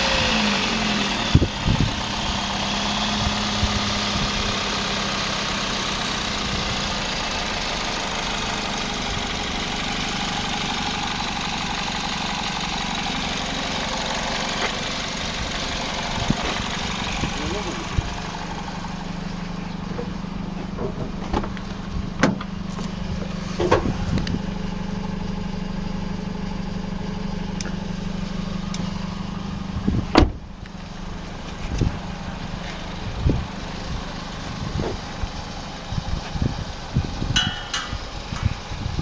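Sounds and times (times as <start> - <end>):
car engine idling: 0.0 - 39.0
loud clunk: 30.1 - 30.4.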